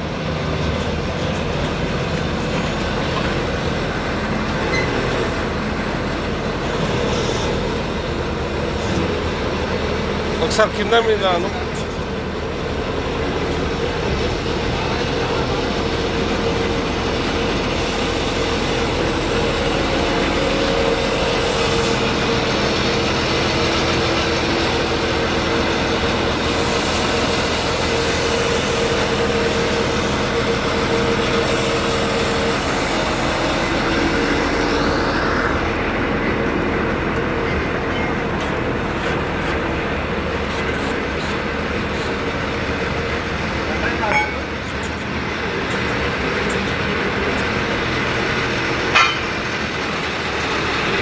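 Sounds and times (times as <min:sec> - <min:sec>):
drilling rig engine drone: 0:00.0 - 0:51.0.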